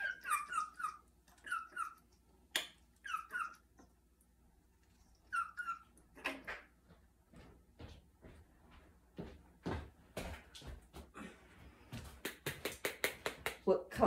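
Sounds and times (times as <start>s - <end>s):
parrot squeaky calls: 0.0s - 3.7s, 5.2s - 6.7s.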